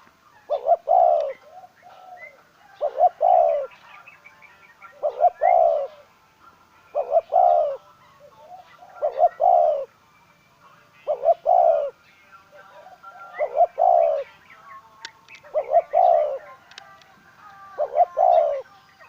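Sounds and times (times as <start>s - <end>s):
dove cooing: 0.0s - 4.2s, 4.8s - 6.2s, 6.8s - 10.0s, 11.0s - 14.4s, 15.3s - 17.0s, 17.6s - 19.0s.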